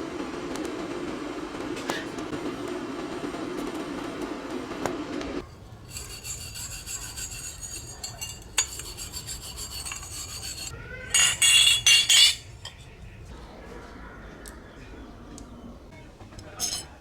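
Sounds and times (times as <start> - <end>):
file rasping over metal: 5.9 - 12.5.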